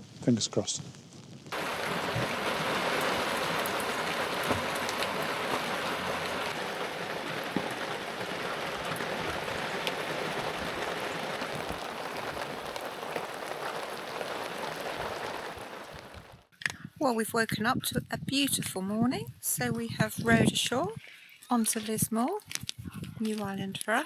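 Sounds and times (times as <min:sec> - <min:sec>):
heavy rain falling: 0:00.0 - 0:16.5.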